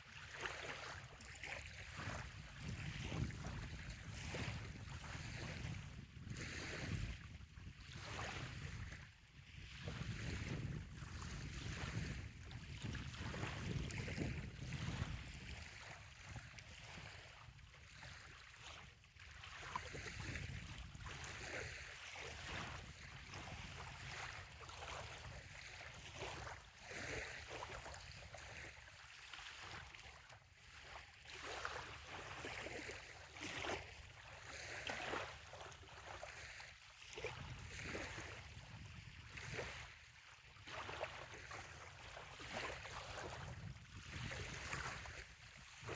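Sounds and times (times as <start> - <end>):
waves lapping on sand: 0.0 - 45.9
wind rumble on microphone: 0.6 - 18.3, 19.7 - 28.8, 37.1 - 40.0, 42.4 - 45.9.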